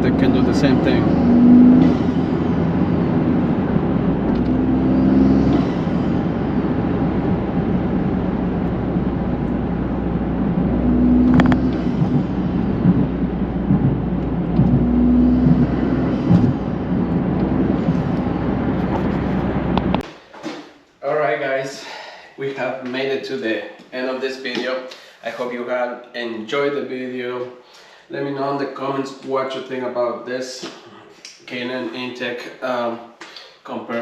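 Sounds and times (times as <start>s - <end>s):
car engine rumble: 0.0s - 20.1s
road noise: 0.0s - 20.1s.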